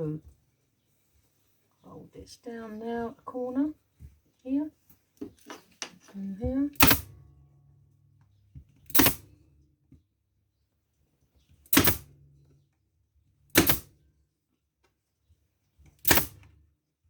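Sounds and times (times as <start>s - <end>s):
staple gun firing: 6.8s - 7.1s, 8.9s - 9.3s, 11.7s - 12.1s, 13.6s - 13.9s, 16.0s - 16.5s.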